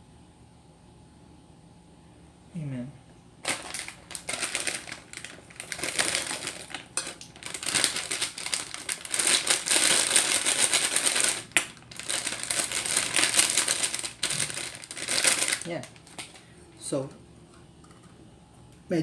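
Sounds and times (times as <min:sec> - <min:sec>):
rapid crackling and clicking: 0:03.4 - 0:16.4.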